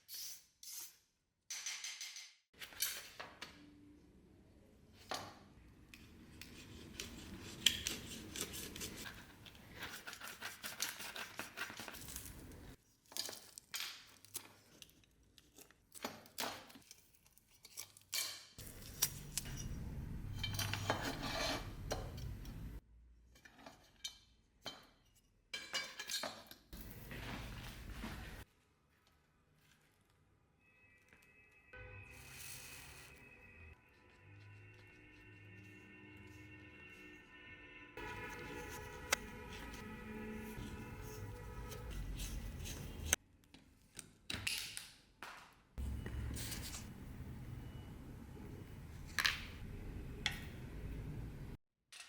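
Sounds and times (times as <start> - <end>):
rough rubbing or scraping: 20.5 - 22.0, 38.0 - 43.2.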